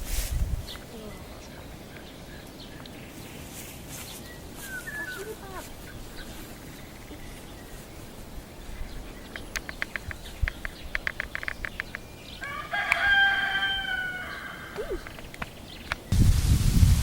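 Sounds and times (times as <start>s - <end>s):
rooster crowing: 12.4s - 15.0s.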